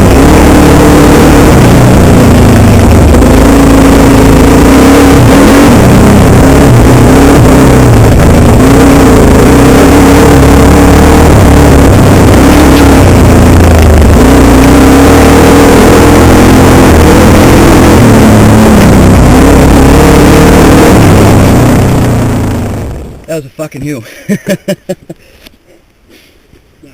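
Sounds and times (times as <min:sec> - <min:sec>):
dirt bike engine revving: 0:00.0 - 0:23.3.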